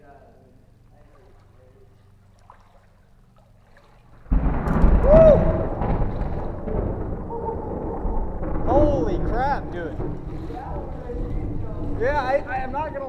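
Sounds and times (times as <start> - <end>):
thunder crack and rumble: 4.3 - 13.0.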